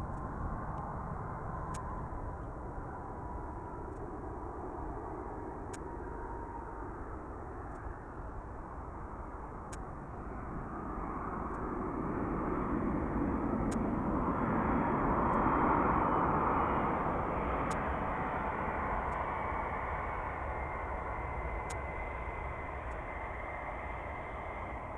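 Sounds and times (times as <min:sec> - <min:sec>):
jet engines roaring: 0:08.5 - 0:24.9.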